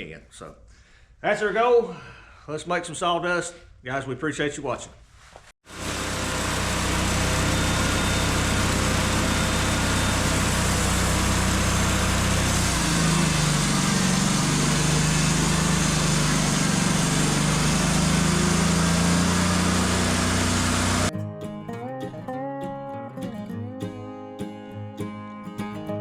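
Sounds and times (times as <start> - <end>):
band sawmill running: 5.7 - 21.1.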